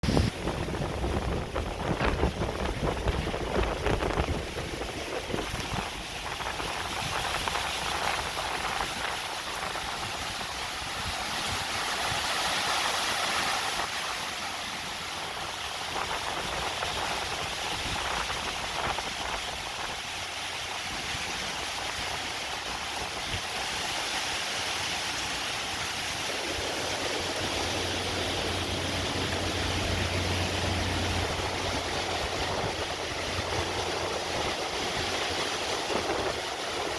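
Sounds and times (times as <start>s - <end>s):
gusting wind: 0.0s - 36.9s
heavy rain: 0.0s - 36.9s
low hum: 26.4s - 34.8s.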